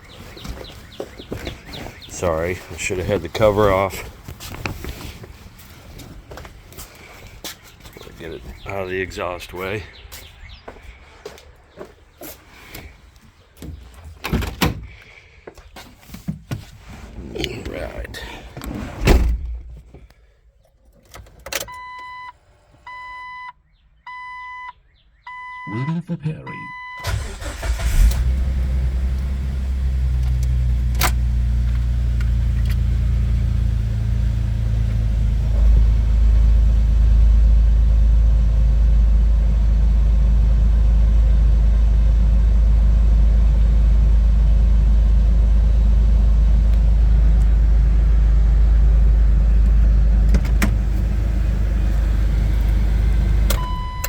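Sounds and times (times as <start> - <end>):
car engine idling: 0.0 - 7.4, 27.0 - 54.0.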